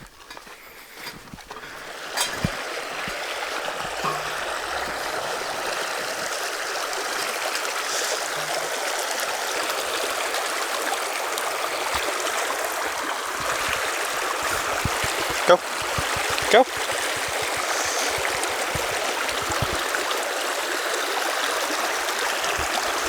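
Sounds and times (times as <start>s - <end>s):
running water rushing: 0.0s - 23.0s
short knocks: 13.4s - 19.8s.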